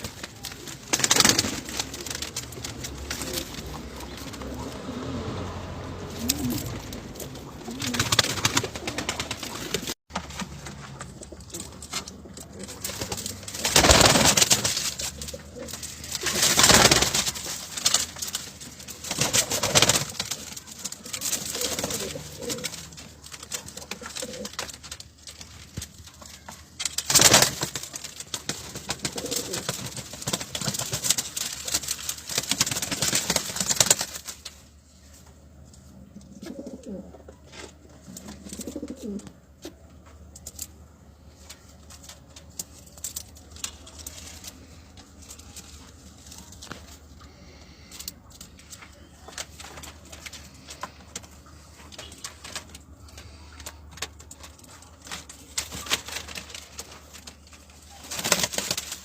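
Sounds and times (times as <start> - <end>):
pigeons cooing: 0.0 - 10.0, 19.0 - 24.9, 28.8 - 31.5, 36.1 - 39.4.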